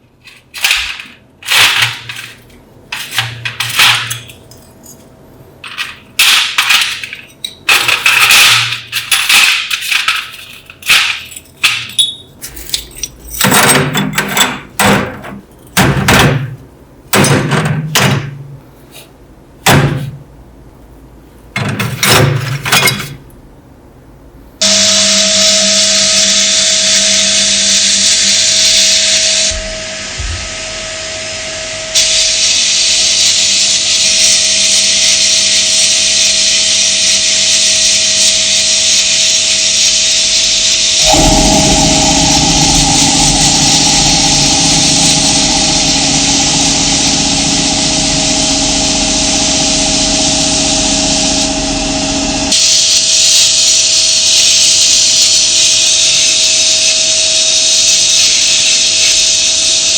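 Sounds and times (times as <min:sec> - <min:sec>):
deep machine hum: 0:29.5 - 0:32.0, 0:41.0 - 0:52.5
power tools whirring: 0:40.7 - 0:49.7.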